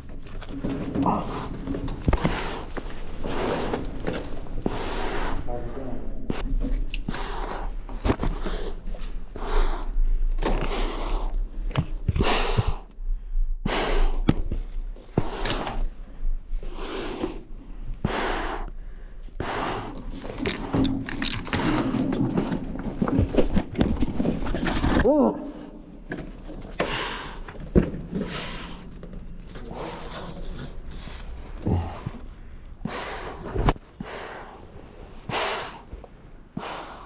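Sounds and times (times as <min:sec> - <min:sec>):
knocks and scrapes: 0:00.0 - 0:04.8, 0:19.9 - 0:25.1
heavy rapid breathing: 0:00.0 - 0:23.8, 0:24.6 - 0:37.0.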